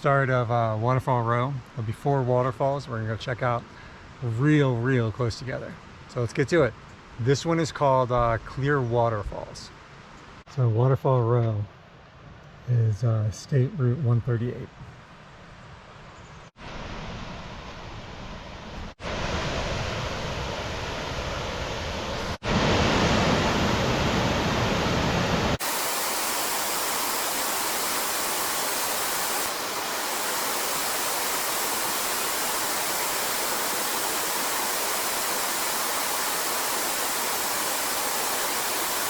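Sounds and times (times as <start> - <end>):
waterfall rushing: 22.4 - 39.0.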